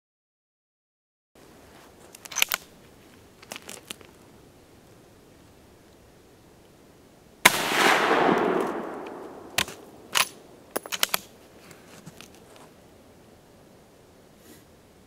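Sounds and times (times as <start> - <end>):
rifle bolt metallic clacks: 2.2 - 2.7, 8.2 - 11.3
rifle shot echoing: 7.4 - 11.2.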